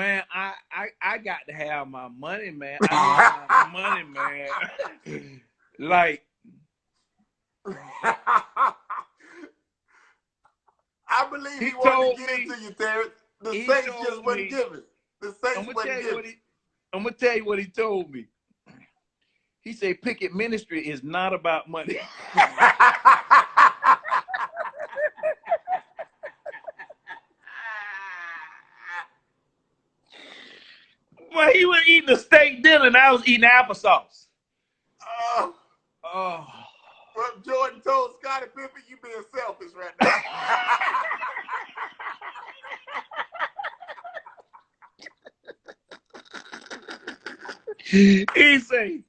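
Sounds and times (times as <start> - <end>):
man laughing hard: 2.8 - 5.3, 7.7 - 9.1, 21.9 - 29.0, 40.0 - 48.3
man chuckling: 2.8 - 5.4, 7.7 - 9.5, 15.4 - 16.2, 21.9 - 29.0, 40.0 - 48.4.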